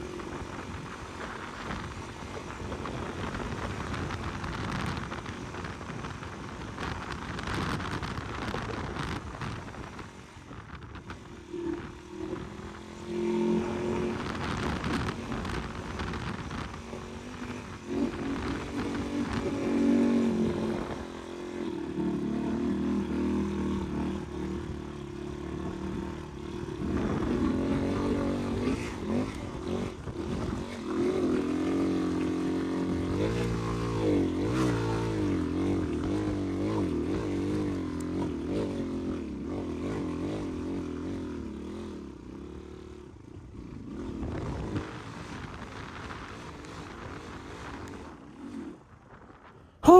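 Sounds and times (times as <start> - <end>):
dirt bike engine revving: 11.0 - 42.9.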